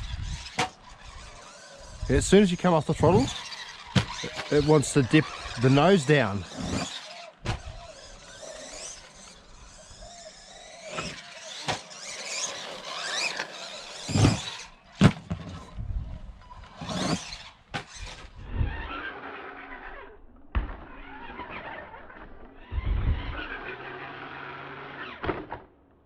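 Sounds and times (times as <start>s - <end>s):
toy truck electric motor whine: 0.0s - 25.4s.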